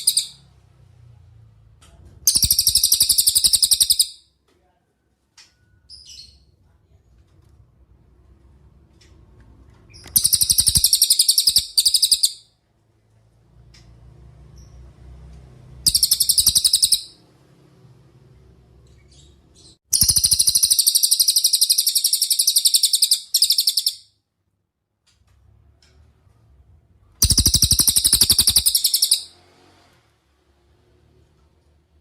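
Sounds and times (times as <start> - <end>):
songbird high-pitched trills: 10.2 - 12.4, 15.9 - 17.2, 20.0 - 24.1, 27.2 - 29.3.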